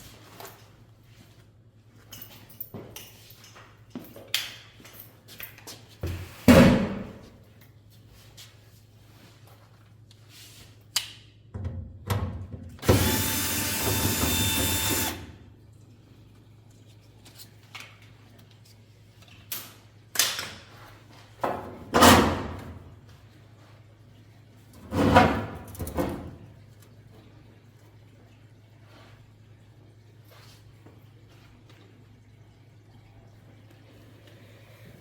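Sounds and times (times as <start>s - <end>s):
power drill running: 12.8s - 15.4s.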